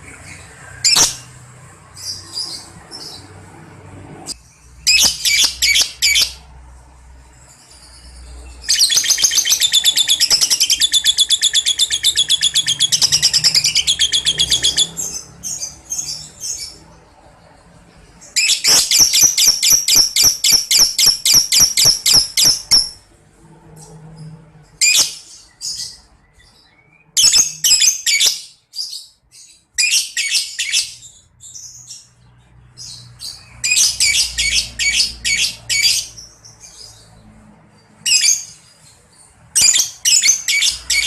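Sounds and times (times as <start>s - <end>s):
lovebird chattering trills: 4.9s - 6.4s, 18.4s - 23.0s.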